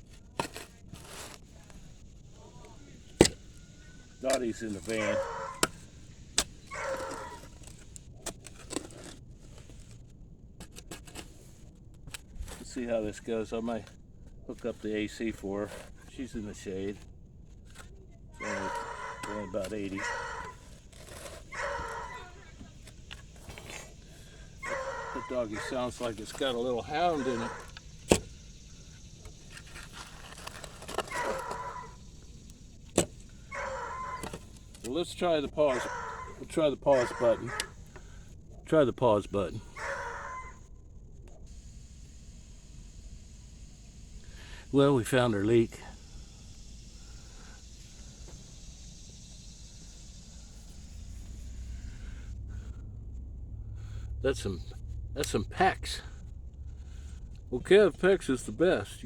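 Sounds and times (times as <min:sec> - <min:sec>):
dog baying: 0:04.9 - 0:05.7, 0:06.7 - 0:07.5, 0:18.4 - 0:20.7, 0:21.5 - 0:22.7, 0:24.6 - 0:26.0, 0:27.0 - 0:27.8, 0:31.1 - 0:32.0, 0:33.5 - 0:34.4, 0:35.6 - 0:37.8, 0:39.7 - 0:40.6.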